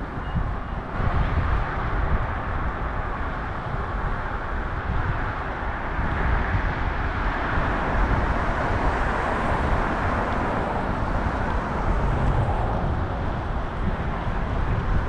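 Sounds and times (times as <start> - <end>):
street traffic: 0.0 - 15.0
wind rumble on microphone: 0.0 - 15.0.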